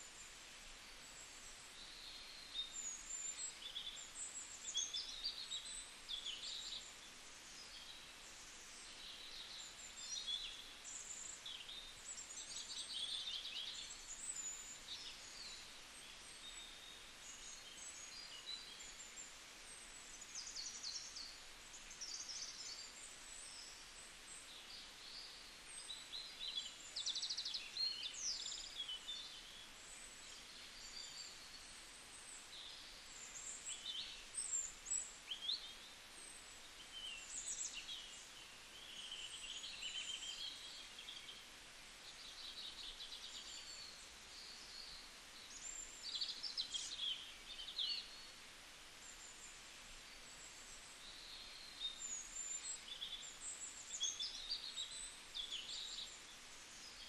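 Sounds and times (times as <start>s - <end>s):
faint background hiss: 0.0s - 57.0s
small birds chirping and twittering: 0.0s - 57.0s.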